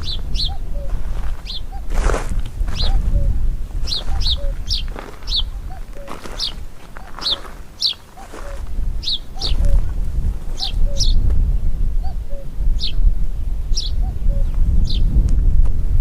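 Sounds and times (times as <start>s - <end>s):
high bird chirps: 0.0s - 1.9s, 2.7s - 11.2s
soft low bird notes: 0.0s - 13.1s.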